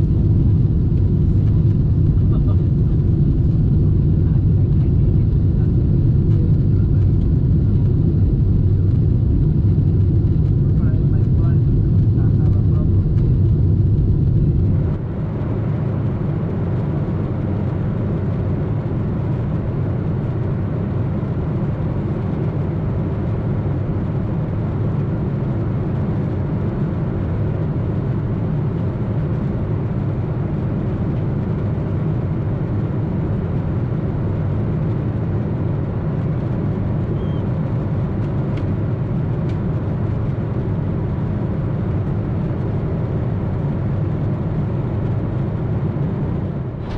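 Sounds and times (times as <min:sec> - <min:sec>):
jet engines roaring: 0:00.0 - 0:46.9.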